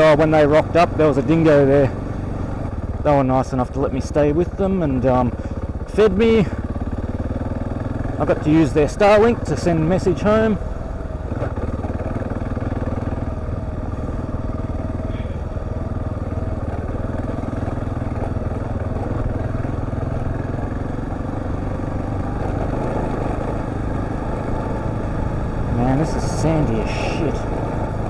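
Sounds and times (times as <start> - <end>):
motorcycle engine running: 0.0 - 28.0
riding noise: 20.8 - 28.0.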